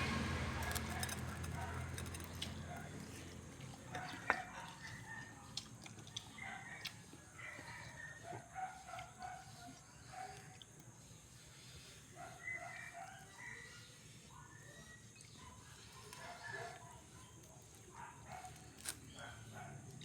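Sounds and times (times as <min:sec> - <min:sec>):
faint rooster crowing: 0:06.1 - 0:08.9, 0:12.2 - 0:14.9.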